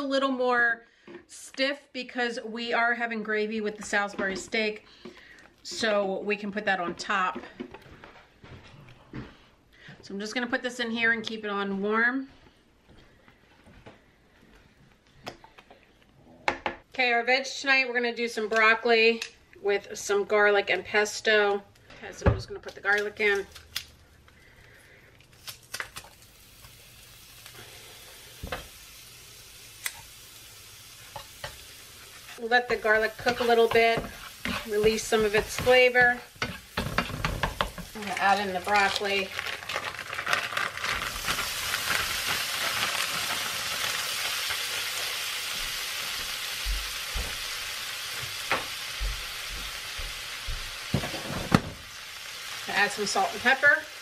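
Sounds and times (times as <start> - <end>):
garlic sizzling in a skillet: 25.7 - 54.0
utensil scraping pan: 31.1 - 42.9.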